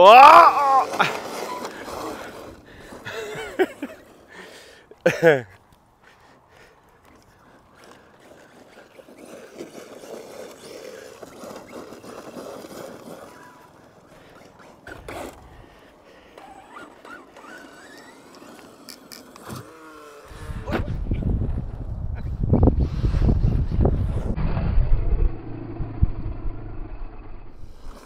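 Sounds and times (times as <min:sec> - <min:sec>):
distant rc truck motor whine: 0:00.7 - 0:03.2, 0:07.8 - 0:20.7, 0:22.9 - 0:28.0.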